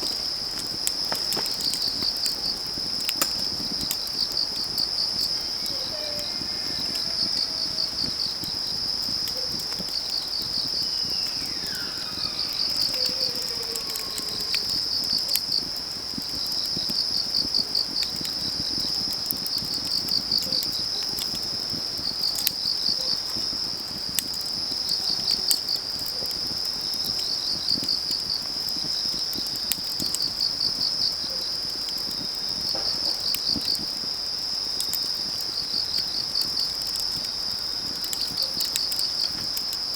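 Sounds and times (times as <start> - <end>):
crickets chirping: 0.0 - 39.9
wood fire crackling and popping: 0.0 - 39.9
faint falling call: 5.3 - 8.4, 10.4 - 15.3.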